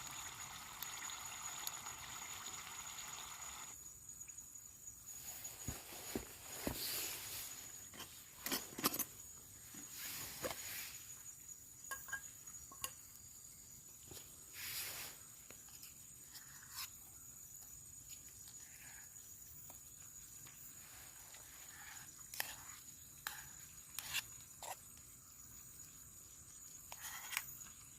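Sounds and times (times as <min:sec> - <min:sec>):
insect drone: 0:00.0 - 0:27.9
camp gear clicks and knocks: 0:07.8 - 0:09.2.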